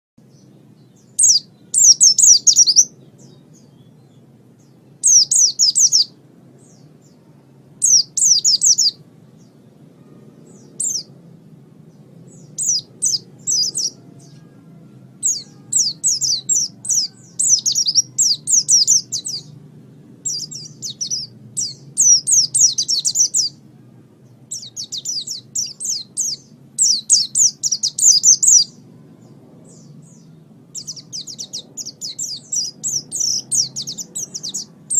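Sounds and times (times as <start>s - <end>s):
bird singing rapid chirps: 0.2s - 11.2s, 11.9s - 14.5s, 15.2s - 23.6s, 24.2s - 34.9s
faint low hum: 0.2s - 34.9s.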